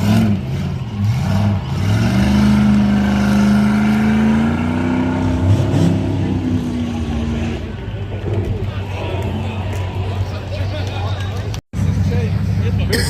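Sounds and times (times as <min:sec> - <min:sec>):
truck engine revving: 0:00.0 - 0:10.4.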